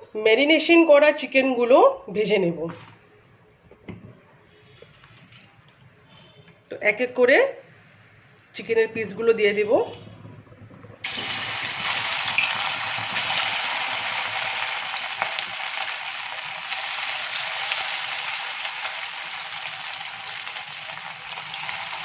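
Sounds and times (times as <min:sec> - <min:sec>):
chicken sizzling in hot oil: 0:11.0 - 0:22.0.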